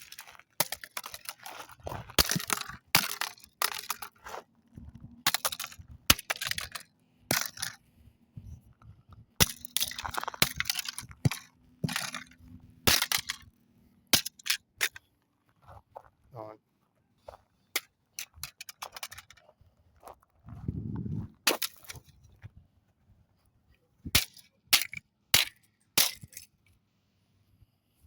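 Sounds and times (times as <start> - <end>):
casing crunching and rattling: 0.0 - 13.5, 17.8 - 19.5.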